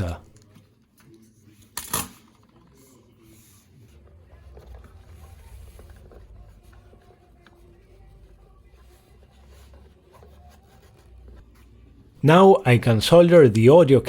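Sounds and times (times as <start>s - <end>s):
carpet scratching and rubbing: 3.2s - 12.1s.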